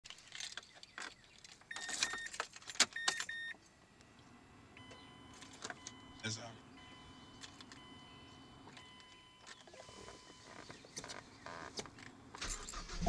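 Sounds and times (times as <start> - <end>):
clicking and rattling handling: 0.1 - 3.3
short electronic beeps: 3.0 - 3.6
faint steady tone: 3.0 - 10.7.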